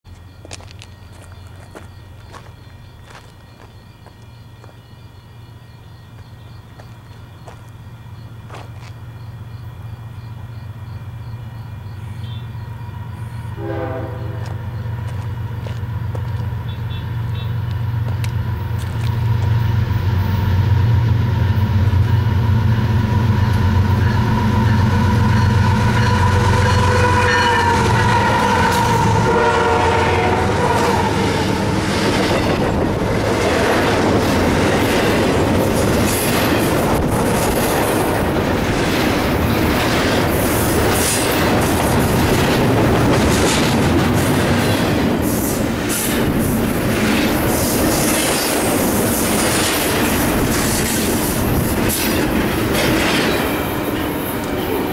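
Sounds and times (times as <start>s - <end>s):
locomotive engine drone: 0.1s - 54.9s
train horn: 12.2s - 12.6s, 13.5s - 14.7s, 16.6s - 17.7s, 23.8s - 32.4s
train cars clattering on rails: 23.2s - 54.9s.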